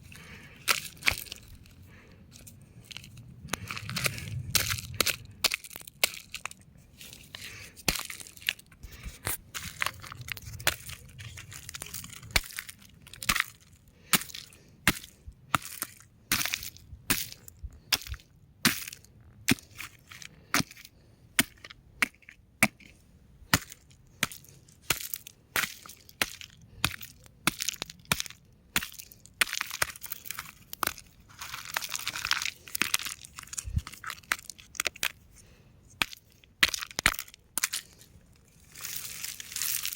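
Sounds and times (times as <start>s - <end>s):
rocks cracking and crumbling: 2.8s - 18.2s, 23.6s - 35.2s, 36.0s - 39.9s.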